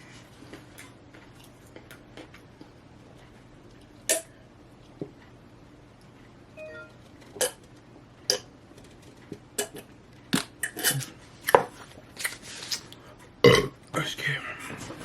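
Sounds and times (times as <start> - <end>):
chewing crunchy food: 0.3 - 4.1, 9.6 - 13.0.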